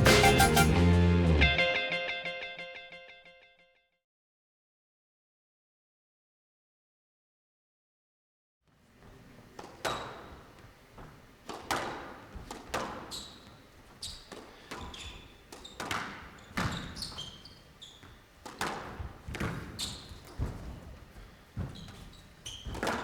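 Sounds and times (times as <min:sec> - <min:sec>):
shoes squeaking on court floor: 0:08.7 - 0:23.0
ball hitting walls: 0:09.0 - 0:23.0
squash ball cracking off rackets: 0:09.5 - 0:20.8, 0:21.6 - 0:23.0.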